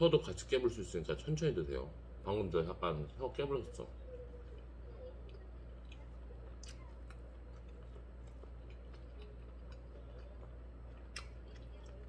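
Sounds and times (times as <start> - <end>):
low steady hum: 0.0 - 12.0
wet chewing clicks: 4.5 - 12.0.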